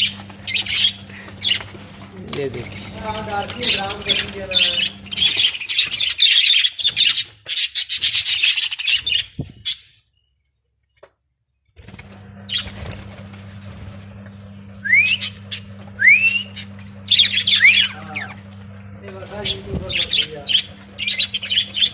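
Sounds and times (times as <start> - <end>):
steady low hum: 0.0 - 7.2, 11.6 - 21.9
budgerigars chattering and chirping: 0.0 - 10.0, 15.0 - 18.4, 19.0 - 21.9
rising whistled chirps: 14.8 - 17.9.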